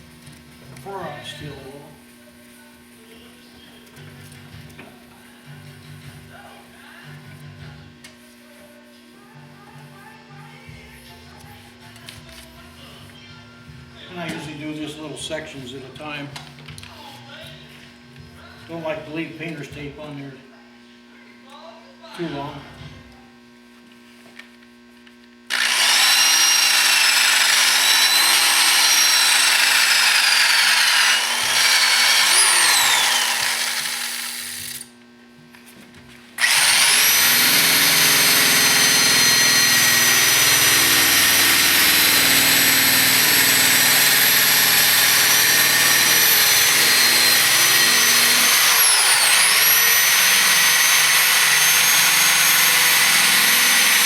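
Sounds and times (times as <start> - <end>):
power tool high whine: 25.5 - 35.0, 36.4 - 54.0.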